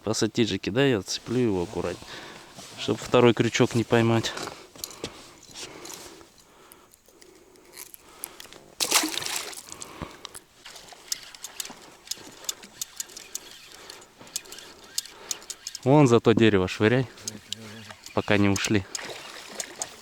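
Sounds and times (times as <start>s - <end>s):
pliers and hooks clicking: 4.8s - 8.5s, 9.7s - 15.9s, 17.2s - 20.0s.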